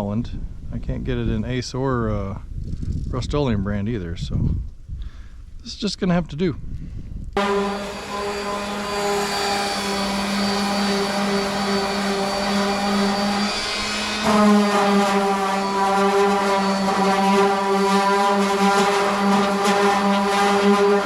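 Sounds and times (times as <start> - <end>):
electric power tool motor: 7.4 - 21.0.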